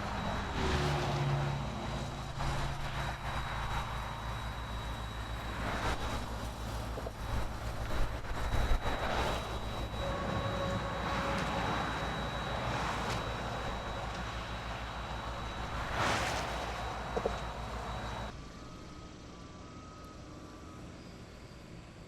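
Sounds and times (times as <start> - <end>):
vehicle passing: 0.0 - 4.0
heavy vehicle engines rumbling: 0.0 - 18.4.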